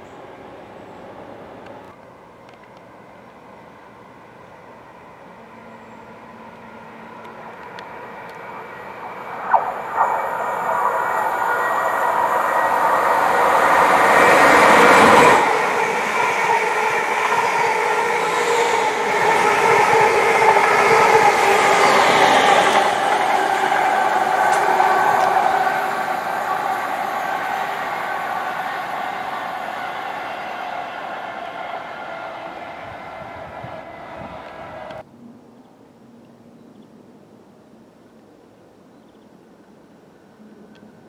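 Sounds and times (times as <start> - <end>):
electric train running past: 0.0 - 35.1
carriage whine: 4.5 - 35.0.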